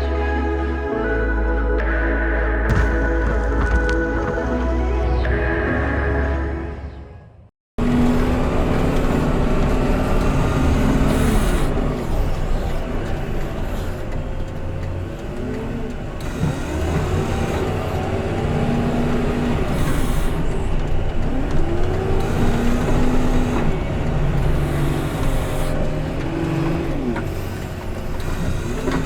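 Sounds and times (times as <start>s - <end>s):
diesel engine running under load: 7.8s - 29.0s.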